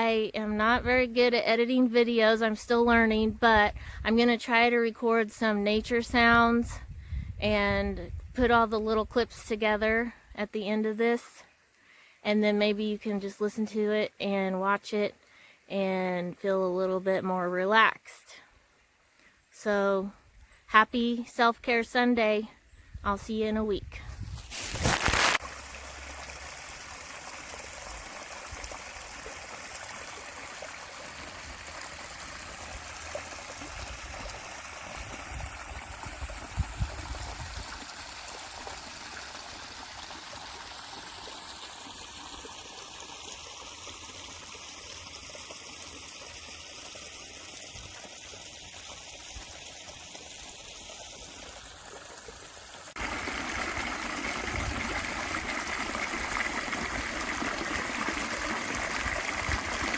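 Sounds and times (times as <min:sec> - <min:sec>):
stream trickling: 0:24.1 - 0:59.9.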